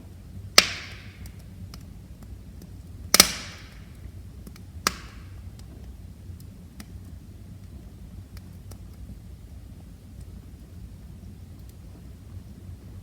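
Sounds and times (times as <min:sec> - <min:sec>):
flames rumbling: 0:00.0 - 0:13.0
wood fire crackling: 0:00.0 - 0:13.0
sharp pops from logs: 0:00.6 - 0:01.9, 0:02.6 - 0:05.3.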